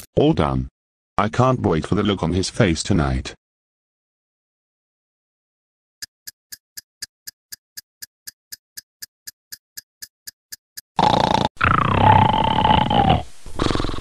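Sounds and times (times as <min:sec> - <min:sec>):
clock ticking: 0:06.2 - 0:11.4
loud snore: 0:11.0 - 0:14.0.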